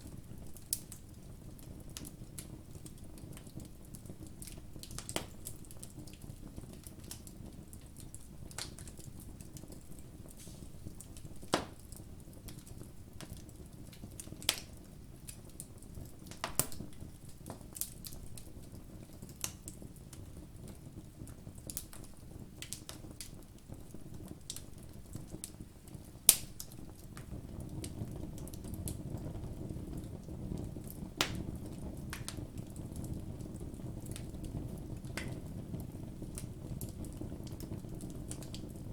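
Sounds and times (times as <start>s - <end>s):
campfire crackling: 0.0s - 38.9s
flame rushing: 8.3s - 12.6s.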